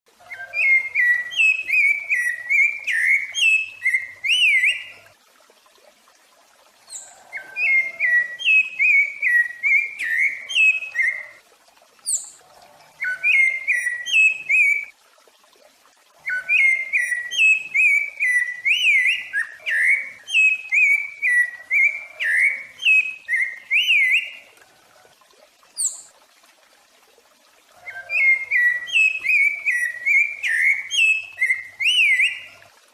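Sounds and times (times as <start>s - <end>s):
songbird whistling song: 0.2s - 5.0s, 6.9s - 11.4s, 12.0s - 12.4s, 13.0s - 14.9s, 16.2s - 24.5s, 25.8s - 26.1s, 27.8s - 32.6s.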